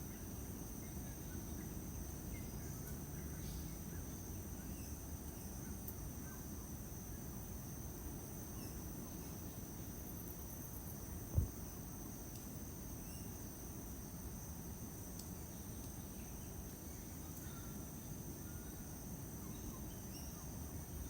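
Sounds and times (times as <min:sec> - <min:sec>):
brief low thump: 0:11.3 - 0:11.6.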